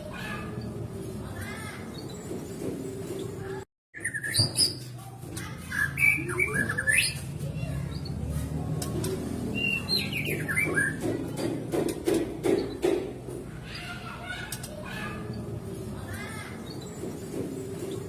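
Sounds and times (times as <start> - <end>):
bird singing whistles and chirps: 4.0 - 4.8.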